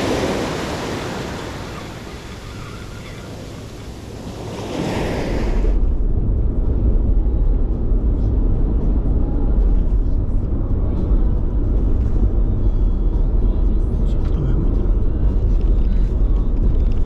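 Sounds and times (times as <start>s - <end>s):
surf washing on beach: 0.0s - 6.2s
wind on microphone: 0.0s - 14.0s
car road noise rumble: 0.0s - 17.0s.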